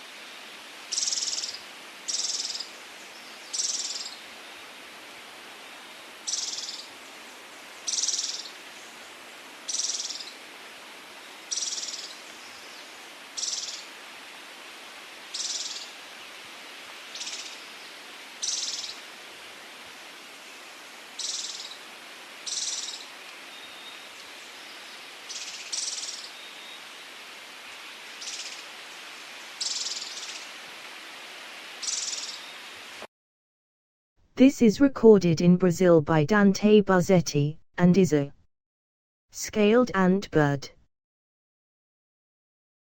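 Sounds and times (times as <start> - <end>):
steady background hiss: 0.0 - 33.0.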